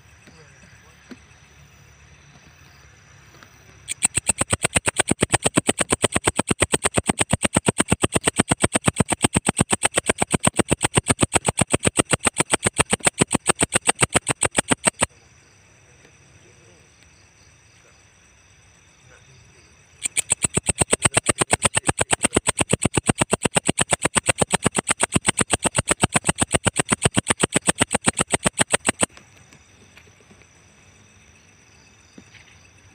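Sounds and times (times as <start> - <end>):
insect chirping high-pitched: 3.8 - 15.5, 18.3 - 29.2.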